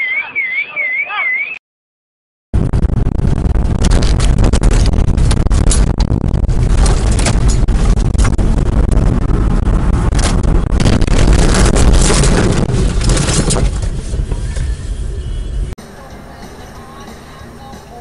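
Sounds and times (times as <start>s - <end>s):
wind rumble on microphone: 2.6s - 15.8s
loud vehicle noise: 4.9s - 18.0s
sharp knocks and cracks: 10.2s - 13.9s.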